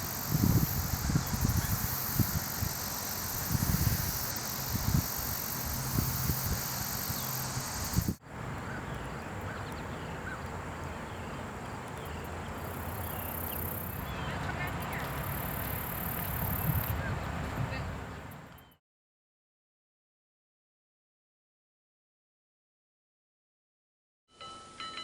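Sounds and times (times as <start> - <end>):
steady hiss: 0.0 - 8.7
wind buffeting microphone: 0.0 - 9.2, 15.7 - 18.2.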